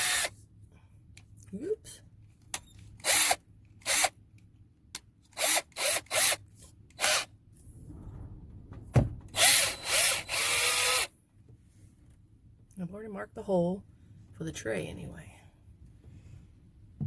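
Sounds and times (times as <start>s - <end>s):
power drill bursts: 0.0s - 0.3s, 3.0s - 4.1s, 5.4s - 6.4s, 7.0s - 7.3s, 9.4s - 11.1s.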